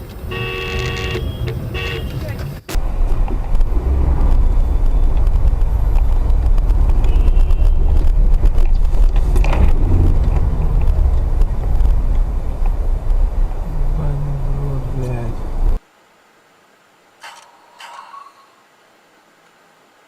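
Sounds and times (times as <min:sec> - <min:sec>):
vehicle engine and road noise: 0:00.0 - 0:15.9.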